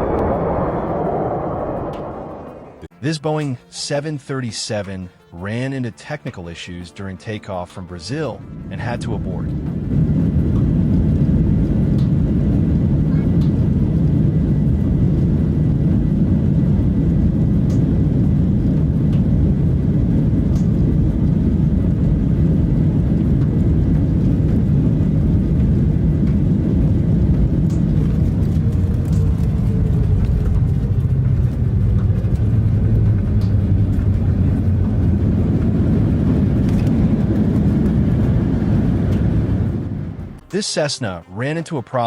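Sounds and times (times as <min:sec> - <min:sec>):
faint falling whine: 0:00.0 - 0:03.0
runway rumble: 0:00.0 - 0:05.4, 0:07.5 - 0:41.8
jet engines roaring: 0:00.0 - 0:42.0.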